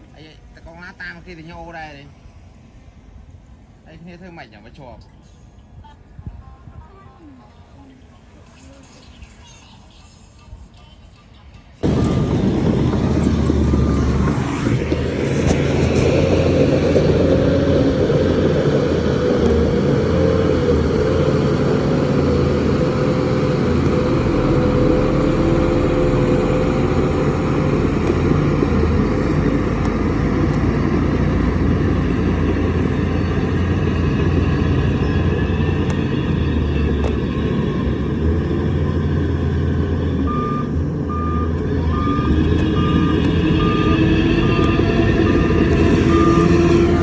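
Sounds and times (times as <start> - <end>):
diesel engine running: 11.8 - 47.0.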